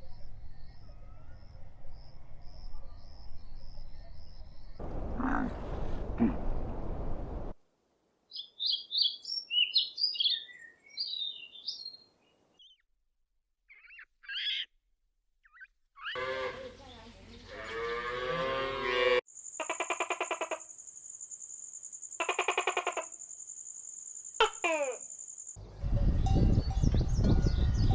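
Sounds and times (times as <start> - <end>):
high bird chirps: 8.3 - 12.8, 13.7 - 14.7, 15.4 - 16.2
long animal call: 17.5 - 20.7, 22.2 - 23.1, 24.4 - 25.1
rapid pulsing animal calls: 19.6 - 20.7, 22.2 - 23.2.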